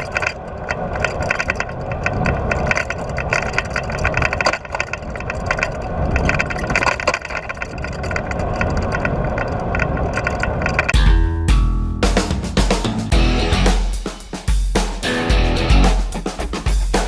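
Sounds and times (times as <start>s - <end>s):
music with drums and guitar: 11.0s - 17.0s.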